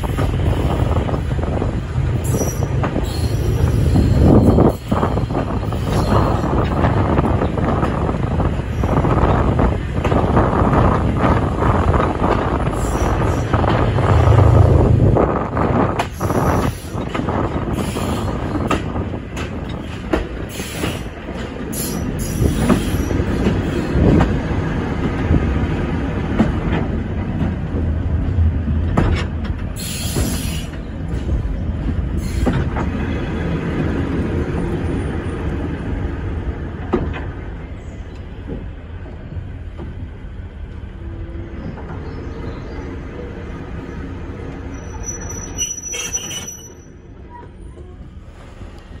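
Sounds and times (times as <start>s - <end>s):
train wheels clicking over rail joints: 15.6s - 40.1s
high wheel squeal: 44.6s - 47.0s.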